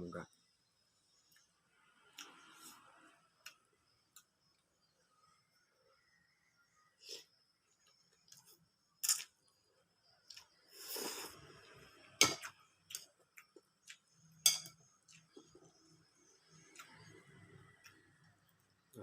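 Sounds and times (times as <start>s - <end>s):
person chewing food: 12.2s - 14.2s, 15.0s - 15.7s.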